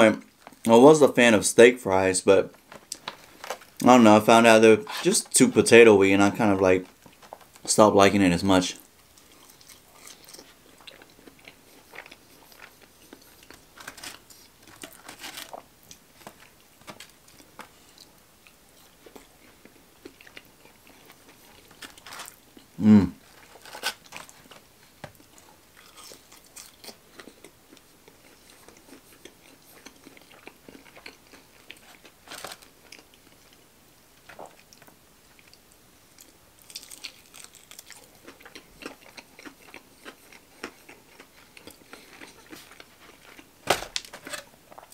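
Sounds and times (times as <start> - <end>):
chewing and crunching food: 2.5 - 4.0, 8.7 - 44.9
person humming: 22.8 - 23.2.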